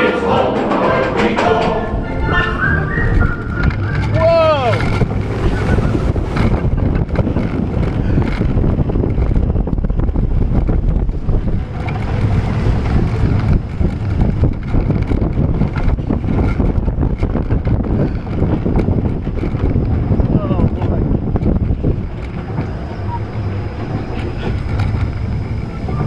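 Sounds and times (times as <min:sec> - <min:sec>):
roller coaster rumbling on track: 0:00.0 - 0:26.0
wind buffeting microphone: 0:00.0 - 0:26.0
rattling clicks: 0:20.7 - 0:26.0.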